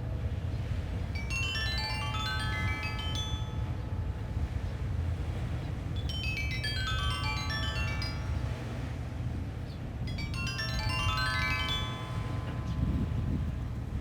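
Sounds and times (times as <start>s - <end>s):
low wind rumbling: 0.0s - 14.0s
stone lithophone ringing: 10.1s - 14.0s.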